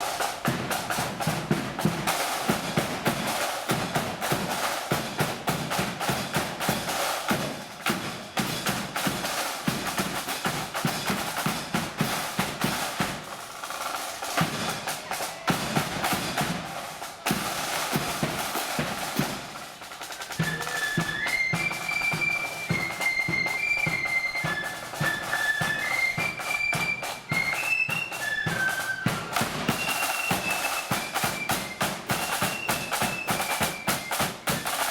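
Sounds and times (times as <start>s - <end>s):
snare drums rolling: 0.0s - 34.9s
flutes playing high melody: 20.0s - 34.9s.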